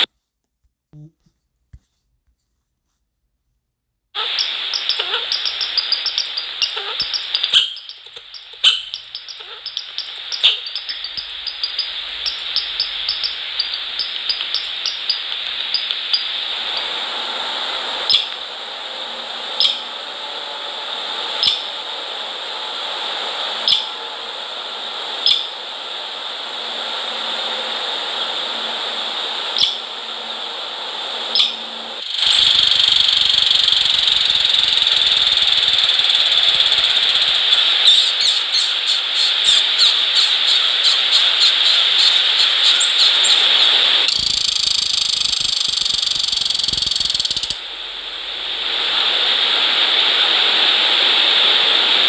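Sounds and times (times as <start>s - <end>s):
microphone hiss: 0.0s - 52.0s.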